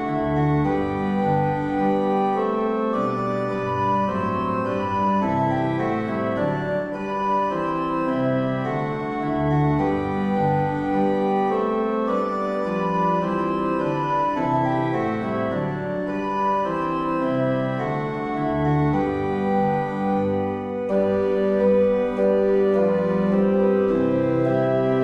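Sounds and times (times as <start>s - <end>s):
organ playing slow chords: 0.0s - 25.0s.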